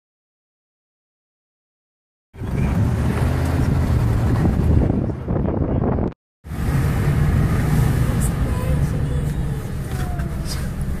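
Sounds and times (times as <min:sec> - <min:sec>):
wind noise on microphone: 0:02.4 - 0:08.0
moving vehicle rumble: 0:02.4 - 0:11.0.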